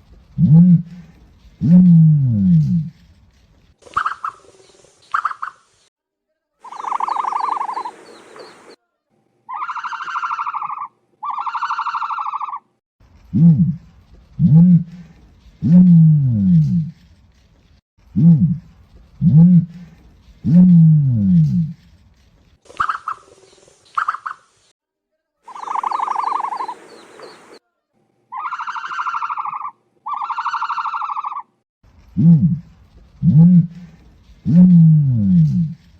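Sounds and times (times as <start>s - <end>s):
bird trilling calls: 6.6s - 8.8s, 9.5s - 12.6s, 25.5s - 27.6s, 28.3s - 31.5s
ostrich buzzy pulsing calls: 6.6s - 8.8s, 25.5s - 27.6s.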